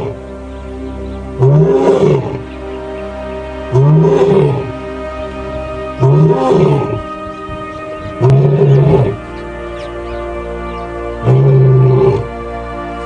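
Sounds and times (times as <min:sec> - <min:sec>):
background music: 0:00.0 - 0:13.0
lion roaring: 0:01.4 - 0:02.5, 0:03.7 - 0:04.8, 0:06.0 - 0:07.1, 0:08.0 - 0:09.3, 0:11.2 - 0:12.3.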